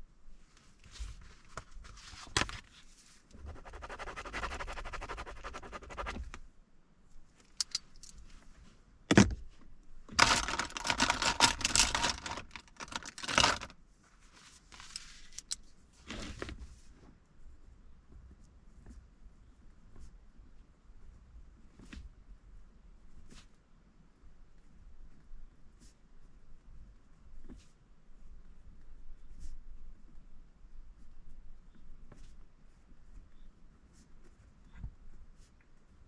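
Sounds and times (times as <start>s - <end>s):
rustling and clicking handling noise: 0.4s - 6.5s, 7.3s - 17.1s
crackly rustling: 9.6s - 17.0s.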